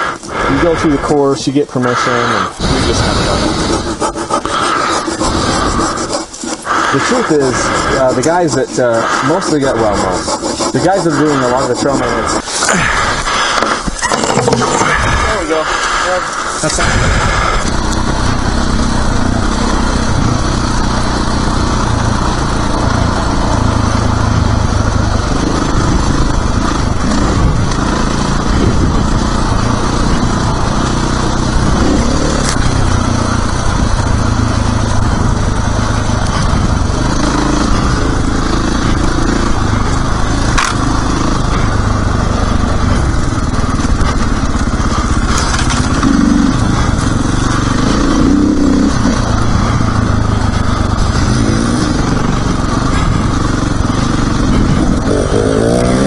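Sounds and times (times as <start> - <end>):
dirt bike engine running: 0.0 - 56.0
sharp clicks: 39.9 - 40.9.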